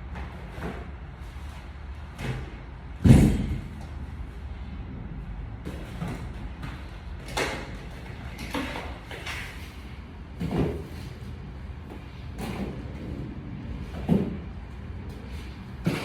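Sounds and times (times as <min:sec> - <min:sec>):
steady low rumble: 0:01.7 - 0:08.4, 0:11.1 - 0:15.9.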